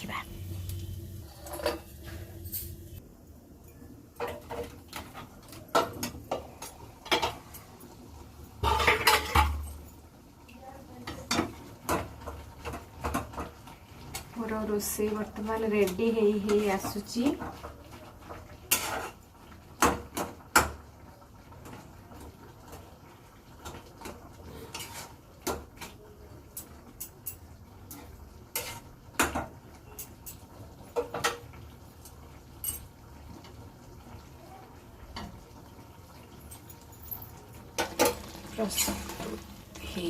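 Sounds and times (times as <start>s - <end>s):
metal pots and utensils clanking: 0.6s - 3.0s, 3.6s - 10.0s, 11.0s - 20.8s, 23.6s - 33.6s, 35.0s - 40.0s.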